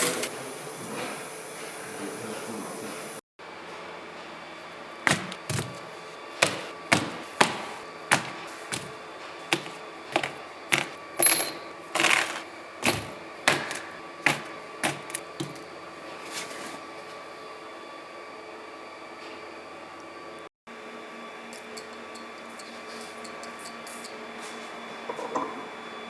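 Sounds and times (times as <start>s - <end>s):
steady background hum: 3.5s - 20.4s
sharp knocks and clicks of tools: 5.1s - 8.9s, 9.5s - 15.7s.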